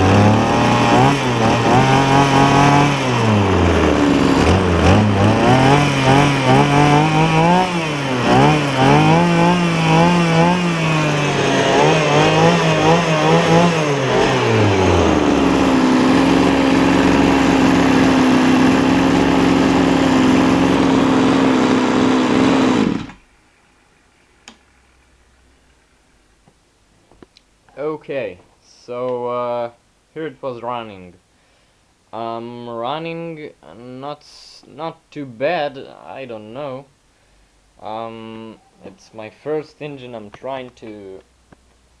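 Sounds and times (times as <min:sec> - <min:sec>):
small two-stroke engine running: 0:00.0 - 0:23.2.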